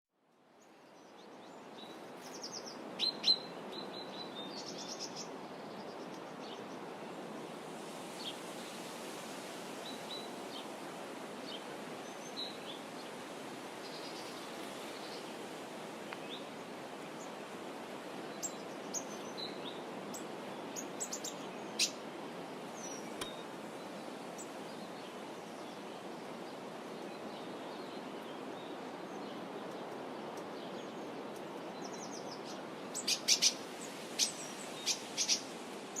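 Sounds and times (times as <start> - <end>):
birds chirping: 18.3 - 36.0.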